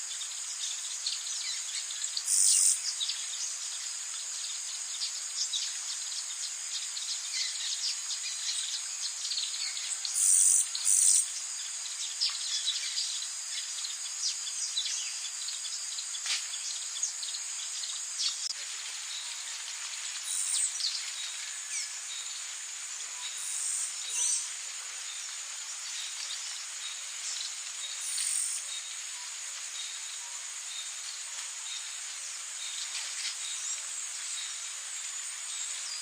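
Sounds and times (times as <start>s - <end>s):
insects chorus: 0.0s - 36.0s.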